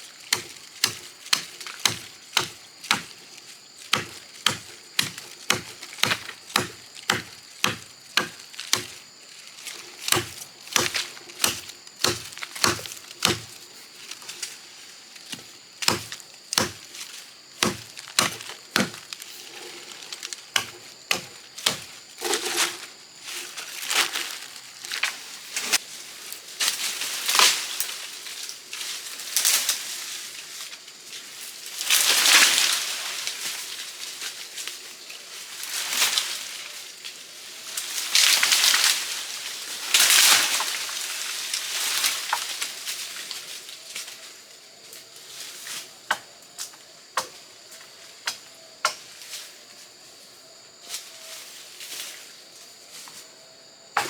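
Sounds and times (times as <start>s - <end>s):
blade chopping wood: 0.3s - 3.2s, 3.9s - 9.0s, 10.0s - 13.6s, 15.3s - 16.9s, 17.6s - 19.2s, 20.6s - 22.5s.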